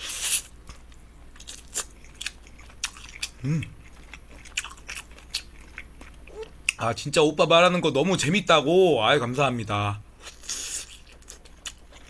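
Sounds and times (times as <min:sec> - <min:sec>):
wet chewing and mouth clicks: 0:00.2 - 0:06.8
person humming: 0:03.4 - 0:03.7.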